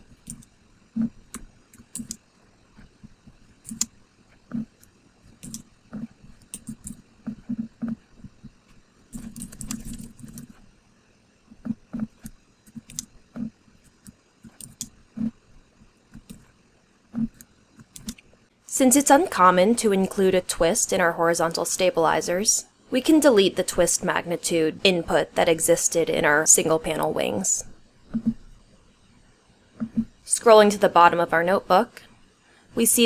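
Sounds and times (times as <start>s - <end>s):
typing on computer keyboard: 1.3s - 2.2s, 5.4s - 7.6s, 9.1s - 10.6s, 12.0s - 15.3s, 17.2s - 18.2s.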